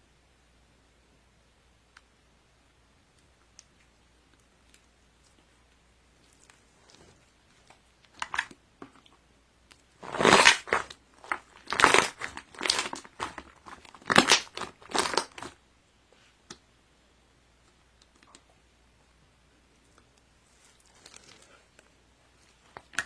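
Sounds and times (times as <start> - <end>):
crinkling handling noise: 3.8 - 15.6, 19.8 - 23.0.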